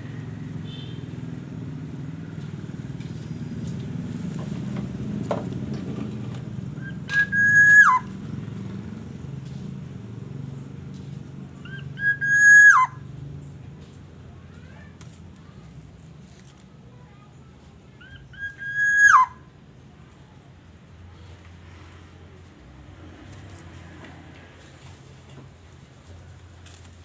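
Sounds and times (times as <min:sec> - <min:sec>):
bird nasal calls: 0:06.8 - 0:08.1, 0:11.7 - 0:13.0, 0:18.0 - 0:19.4.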